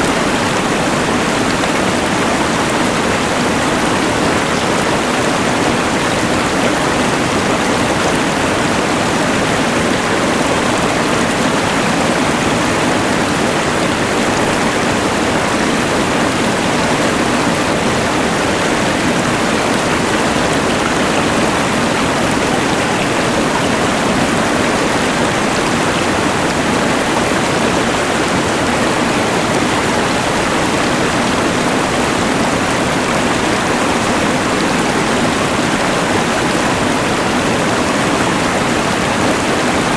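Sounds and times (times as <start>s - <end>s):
rushing river: 0.0s - 39.9s.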